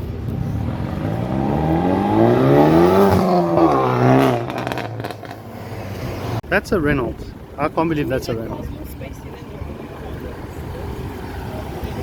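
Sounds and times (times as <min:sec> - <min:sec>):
car engine revving hard: 0:00.3 - 0:06.4.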